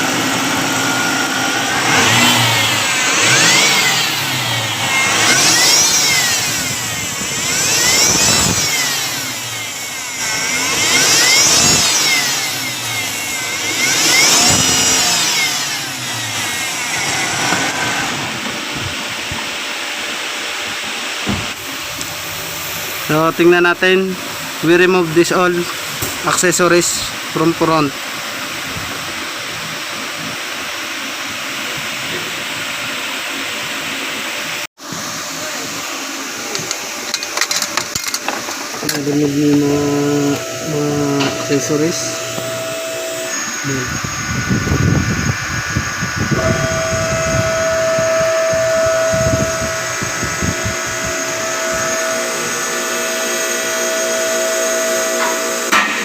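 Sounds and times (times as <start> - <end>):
high mechanical whine: 0.0 - 56.0.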